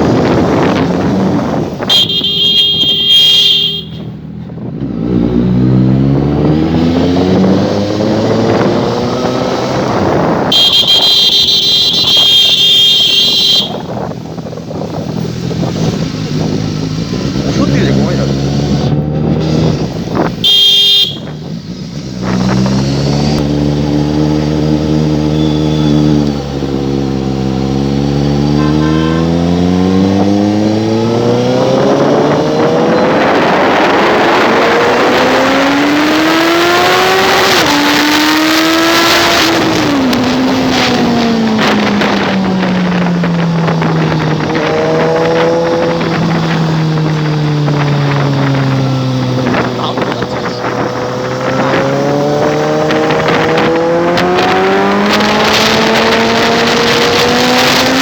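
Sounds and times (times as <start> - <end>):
motorcycle engine with loud exhaust: 0.0 - 58.0
road noise: 0.0 - 58.0
rushing wind: 0.0 - 58.0
short horn beep: 1.8 - 4.1, 10.4 - 14.0, 20.4 - 21.4.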